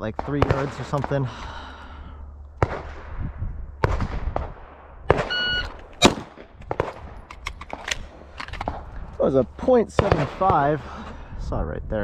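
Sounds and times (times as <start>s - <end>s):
pistol shot: 2.6s - 3.2s, 3.8s - 5.4s, 6.0s - 7.8s
shot timer beep: 5.3s - 5.8s.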